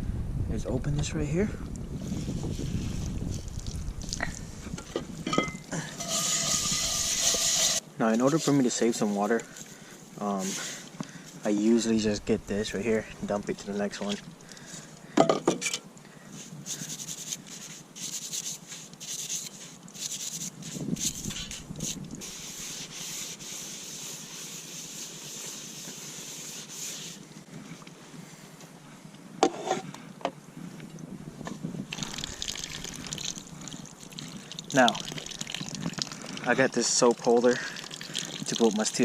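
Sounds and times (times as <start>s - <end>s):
rough scrubbing of dishes: 5.3s - 7.8s, 29.4s - 29.9s
water sloshing and trickling: 13.0s - 15.0s, 31.8s - 39.0s.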